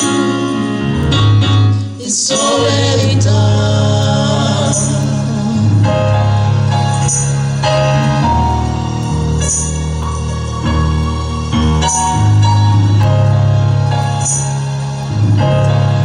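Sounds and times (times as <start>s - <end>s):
bass-heavy band: 0.0s - 16.0s
choir singing held notes: 0.0s - 16.0s.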